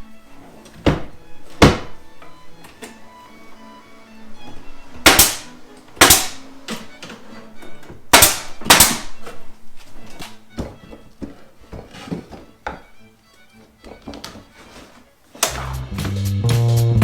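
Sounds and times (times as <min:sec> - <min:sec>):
background music: 0:00.0 - 0:17.0
sharp wooden knocks: 0:00.8 - 0:02.0, 0:05.0 - 0:06.9, 0:08.1 - 0:09.3.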